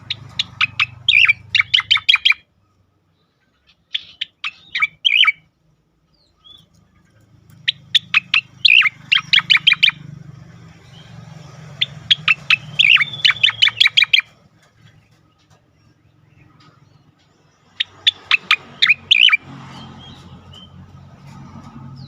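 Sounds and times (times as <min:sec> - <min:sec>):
bird singing sharp notes: 0:00.0 - 0:02.5, 0:03.7 - 0:05.5, 0:07.5 - 0:10.2, 0:10.8 - 0:14.4.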